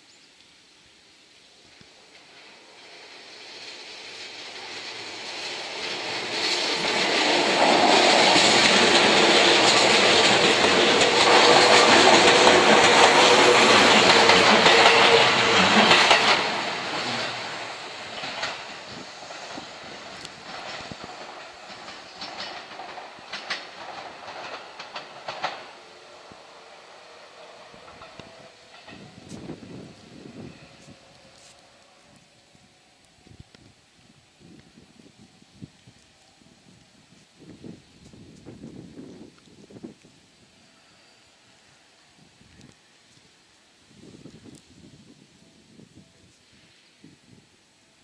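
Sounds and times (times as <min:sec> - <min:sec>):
electric train passing: 0:01.0 - 0:48.0
wheel clicks over rail joints: 0:20.1 - 0:25.7.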